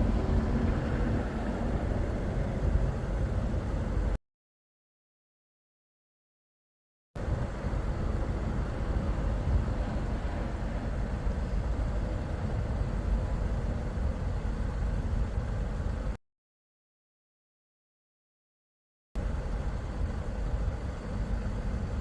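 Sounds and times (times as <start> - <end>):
car road and wind noise: 0.0 - 4.2, 7.2 - 16.2, 19.2 - 22.0.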